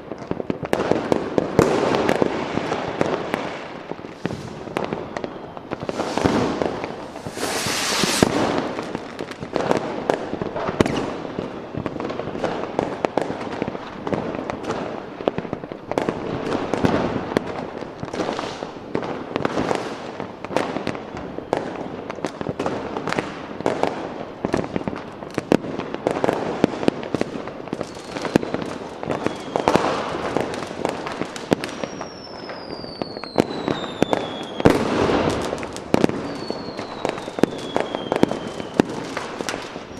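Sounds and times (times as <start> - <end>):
fireworks bangs and crackling: 0.0 - 39.9
descending firework whistles: 1.7 - 9.5, 10.7 - 11.9, 27.8 - 30.6, 31.4 - 39.9.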